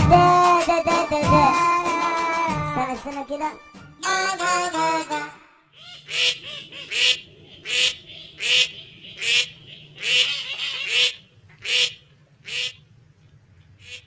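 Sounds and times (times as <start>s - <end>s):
sped-up song: 0.0s - 5.6s.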